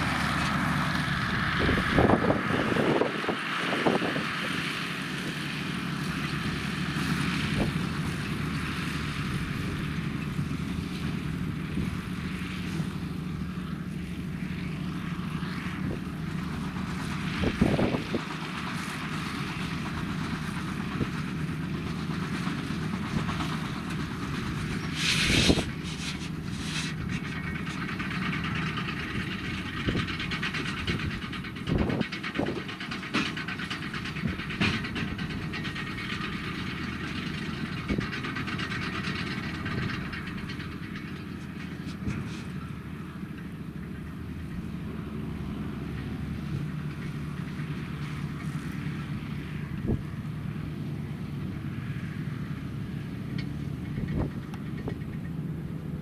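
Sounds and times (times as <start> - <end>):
diesel farm machinery running: 0.0 - 56.0
metal clanks and knocks: 16.3 - 43.5, 53.3 - 55.4
hissing burst: 24.8 - 27.3.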